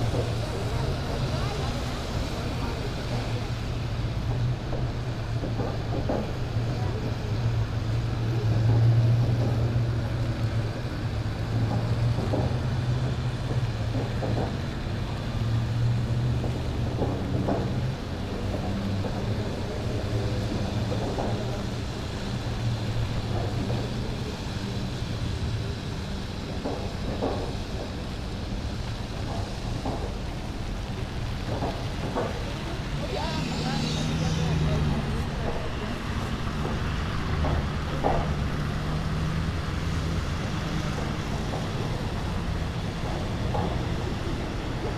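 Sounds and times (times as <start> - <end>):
street noise: 0.0 - 44.9
vehicle engine humming: 0.0 - 44.9.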